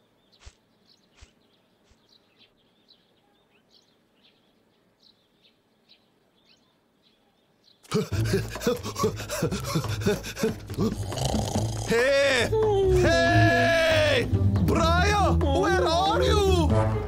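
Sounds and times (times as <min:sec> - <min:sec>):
small birds chirping: 0:00.0 - 0:13.2.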